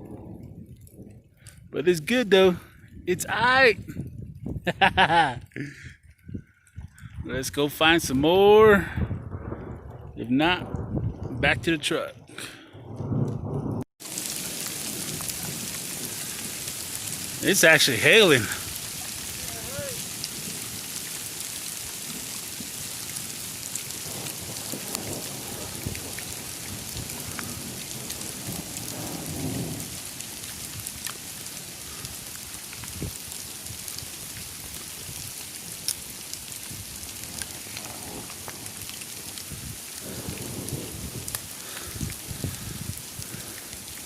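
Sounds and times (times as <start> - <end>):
thunder rumbling: 0.0 - 1.8, 8.8 - 20.9, 23.9 - 30.9, 36.7 - 44.0
rain and hail pattering: 0.0 - 44.0
hailstones ticking: 8.7 - 44.0.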